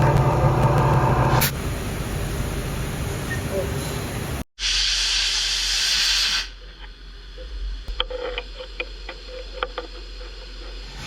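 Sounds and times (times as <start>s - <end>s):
loud air hiss: 4.6s - 6.6s.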